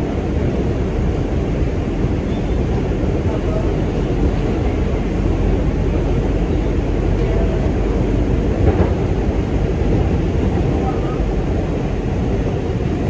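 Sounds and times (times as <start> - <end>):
subway wheels rumbling on rails: 0.0 - 13.0.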